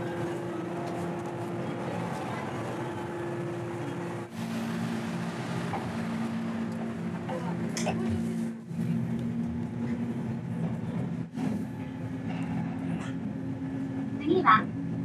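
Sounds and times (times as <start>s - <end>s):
electric train hum: 0.0s - 15.0s.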